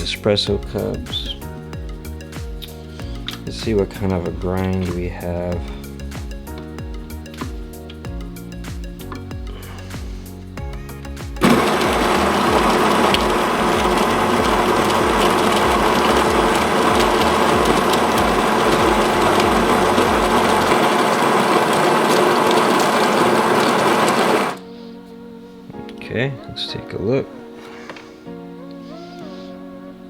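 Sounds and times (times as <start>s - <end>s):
coffee grinder whirring: 11.4s - 24.6s.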